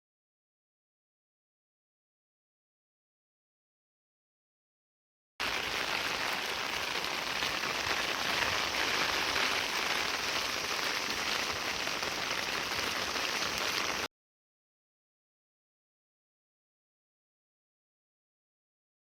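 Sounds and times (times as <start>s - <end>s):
heavy rain falling: 5.4s - 14.1s.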